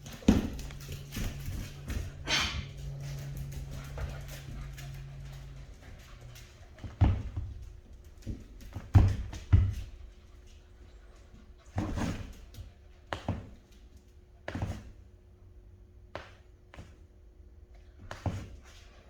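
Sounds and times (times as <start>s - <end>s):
puppies scuffling on floor: 0.0s - 14.9s.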